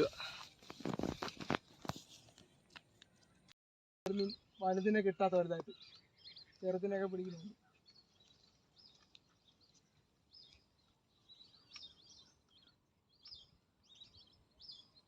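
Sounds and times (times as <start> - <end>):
faint bird chirps: 4.1 - 15.0.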